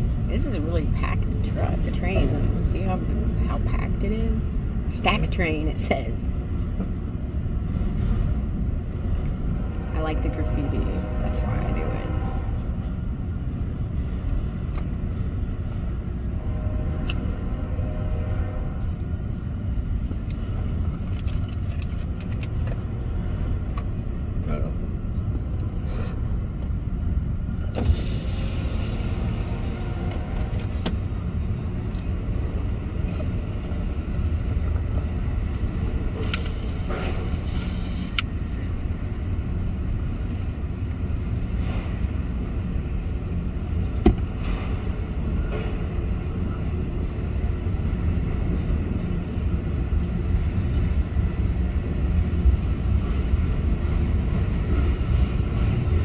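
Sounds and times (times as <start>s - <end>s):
freight train rumbling on rails: 0.0s - 56.0s
train cars clanking: 18.6s - 40.3s, 41.0s - 47.0s.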